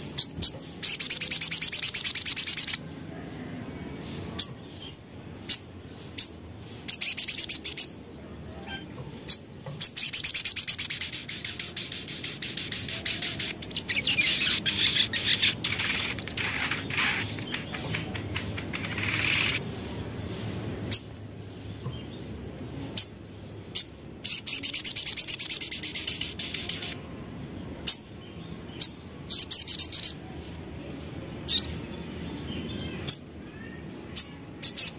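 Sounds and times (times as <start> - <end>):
sharp bird chips: 0.0 - 2.9, 8.8 - 27.0
bird twittering trills: 4.4 - 27.0.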